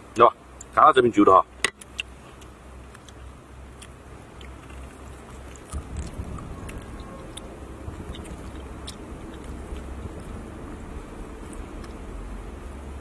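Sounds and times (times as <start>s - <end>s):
people chewing and eating: 1.9s - 12.2s
low rumble: 4.5s - 13.0s.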